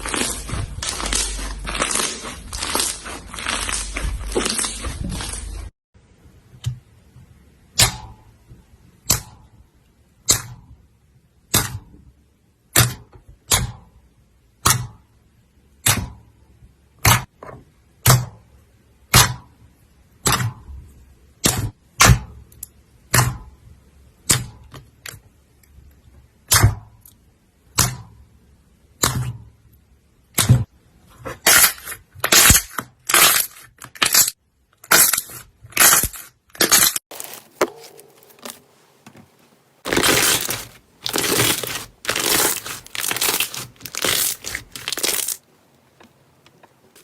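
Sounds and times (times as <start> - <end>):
sharp cracks of crunchy coating: 0.0 - 5.7, 31.4 - 47.0
slime crunching: 0.0 - 5.7, 34.9 - 45.5.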